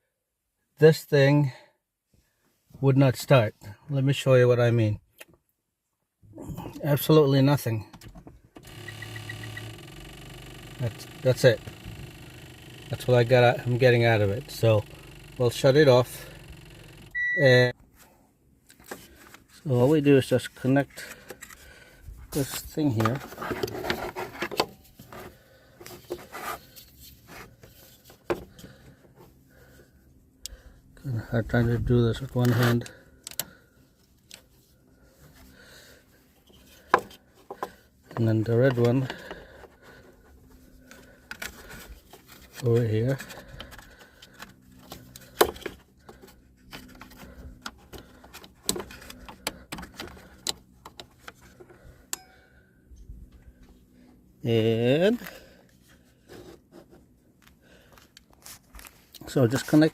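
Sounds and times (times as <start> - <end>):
cable clamp rubbing and scraping: 8.6 - 17.1.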